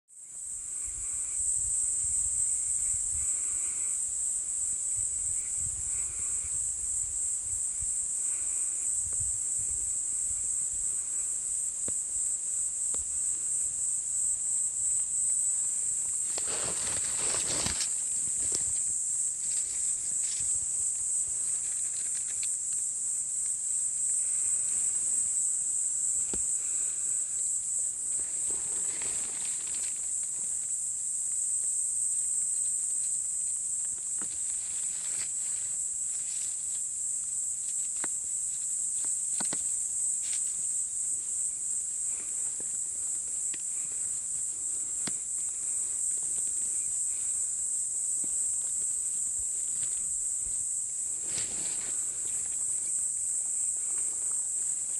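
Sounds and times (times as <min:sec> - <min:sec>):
high-pitched insect chorus: 0:00.1 - 0:54.9
footsteps through undergrowth: 0:15.9 - 0:20.6, 0:48.2 - 0:54.9.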